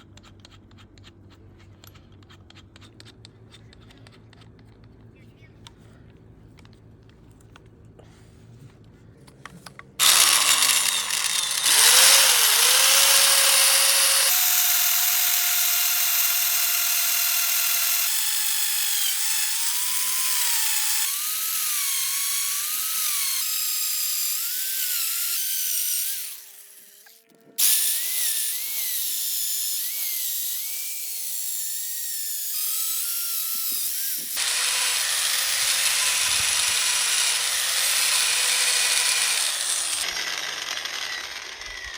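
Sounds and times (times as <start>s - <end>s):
power drill boring into wood: 10.0s - 41.9s.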